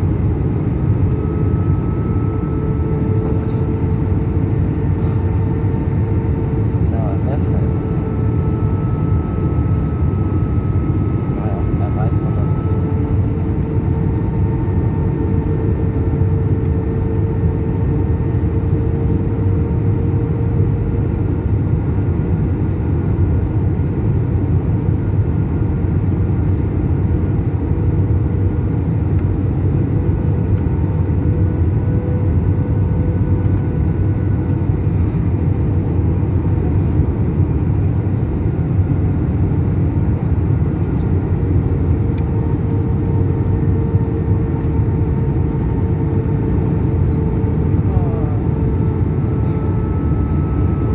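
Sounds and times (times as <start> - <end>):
faint whining tones: 0.0 - 18.8, 39.6 - 50.9
jet engine rumble in cabin: 0.0 - 50.9.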